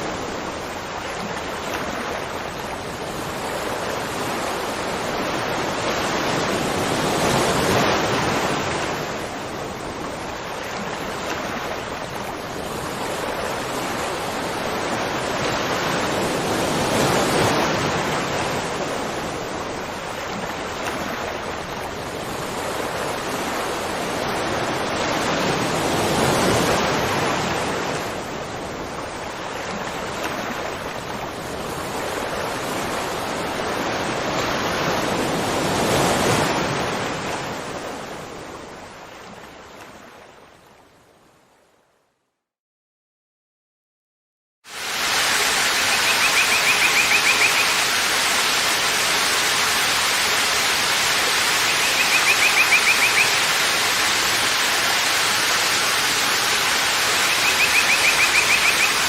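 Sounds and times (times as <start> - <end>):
waterfall rushing: 44.7 - 59.0.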